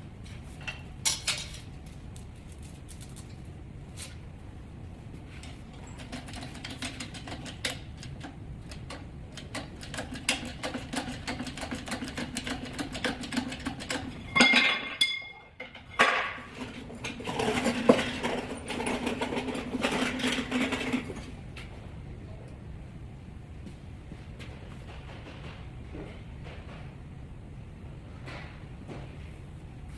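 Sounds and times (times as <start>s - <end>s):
steady hum: 0.0s - 29.9s
loud ringing metal clank: 14.2s - 16.4s
metal tools clinking: 14.2s - 16.4s.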